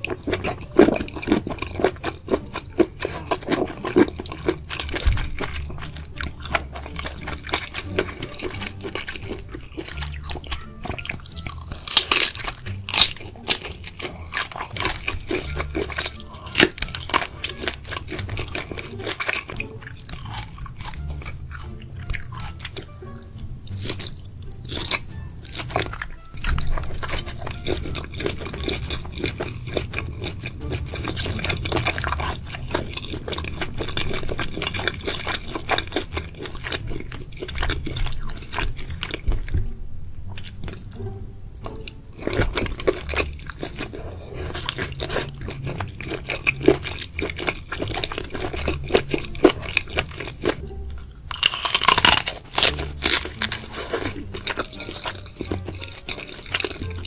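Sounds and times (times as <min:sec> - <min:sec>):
wet chewing and crackly biting: 0:00.0 - 0:57.0
loud sharp crunches: 0:11.8 - 0:15.5, 0:51.3 - 0:54.6.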